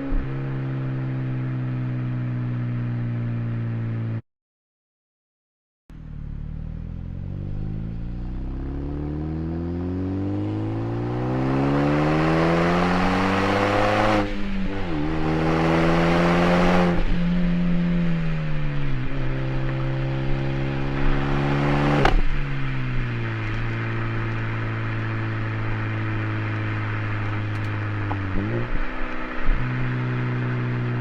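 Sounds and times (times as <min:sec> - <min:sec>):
turbo and exhaust rush: 0:00.0 - 0:04.2, 0:05.9 - 0:31.0
car engine revving: 0:06.0 - 0:31.0.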